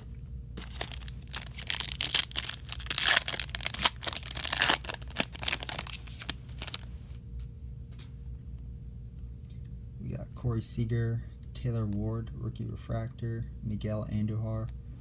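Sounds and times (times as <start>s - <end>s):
foil wrapper crinkling: 0.6s - 7.1s.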